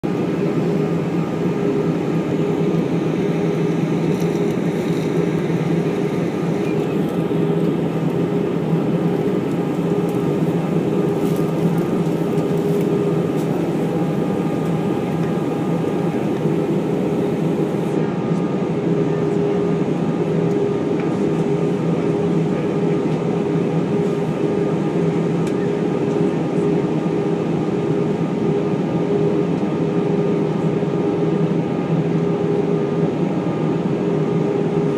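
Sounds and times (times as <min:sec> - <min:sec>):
jet engines humming: 0:00.0 - 0:34.9.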